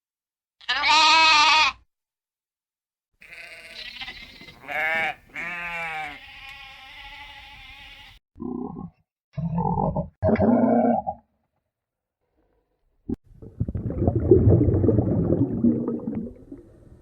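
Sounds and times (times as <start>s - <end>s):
sheep bleating: 0.6s - 1.8s, 3.2s - 8.2s.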